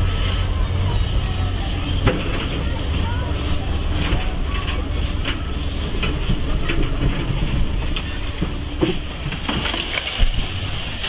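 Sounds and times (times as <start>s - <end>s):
excavator engine rumbling: 0.0s - 11.0s
debris cracking and knocking: 6.6s - 11.0s.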